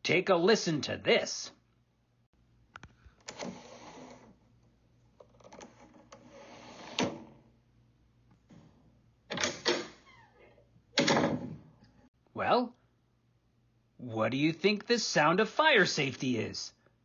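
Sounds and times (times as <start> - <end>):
door opening and closing: 5.4 - 7.4, 9.3 - 11.8.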